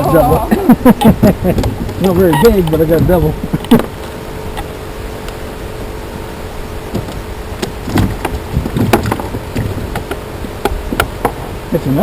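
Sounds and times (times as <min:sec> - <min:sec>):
sharp knocks and clicks: 0:06.9 - 0:11.4.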